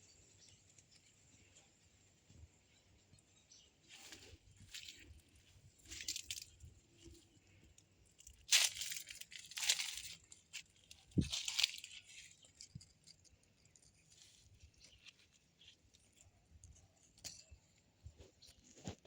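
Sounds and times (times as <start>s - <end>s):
rustling and crackling: 3.9s - 17.5s.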